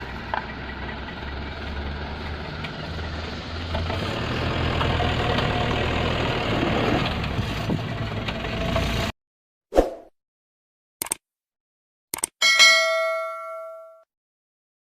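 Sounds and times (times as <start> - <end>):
diesel truck engine running: 0.0 - 9.1.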